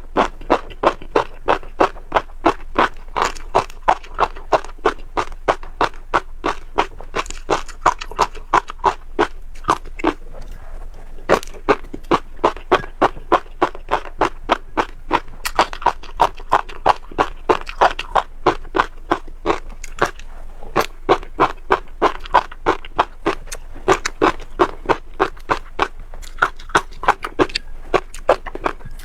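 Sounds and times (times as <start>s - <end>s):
seeds crunched while chewing: 0.0s - 29.0s.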